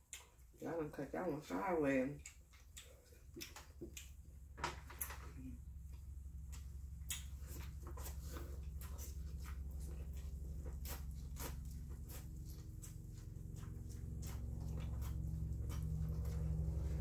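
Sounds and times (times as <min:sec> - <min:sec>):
chewing mouth clicks and smacks: 0:00.0 - 0:00.6, 0:02.2 - 0:04.3, 0:05.9 - 0:16.7
low hum: 0:02.2 - 0:17.0.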